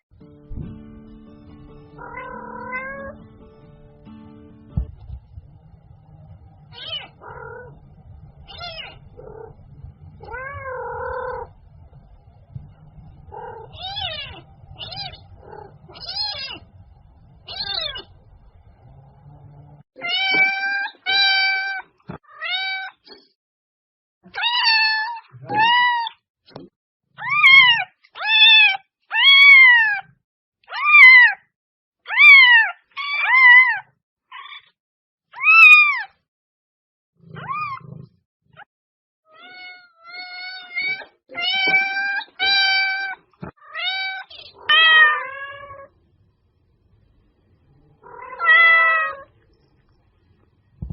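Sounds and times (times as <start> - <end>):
low hum: 0.2 - 19.8
cat meowing: 2.0 - 3.2, 6.7 - 7.8, 8.5 - 9.6, 10.2 - 11.5, 13.3 - 16.7, 17.5 - 18.1, 20.0 - 23.0, 24.3 - 26.2, 27.2 - 30.1, 30.7 - 31.4, 32.1 - 34.7, 35.4 - 36.1, 37.3 - 38.0, 39.3 - 45.9, 48.0 - 49.4.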